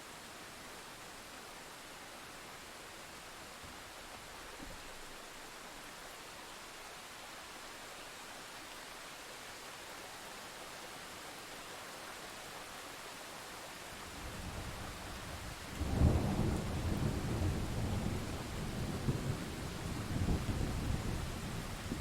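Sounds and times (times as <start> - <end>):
steady rain: 0.0 - 22.0
thunder rumbling: 15.8 - 22.0.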